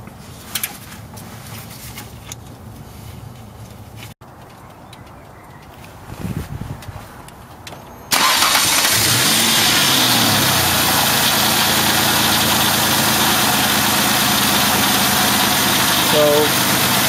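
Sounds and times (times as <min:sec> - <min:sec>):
car engine starting and idling: 0:07.6 - 0:17.0.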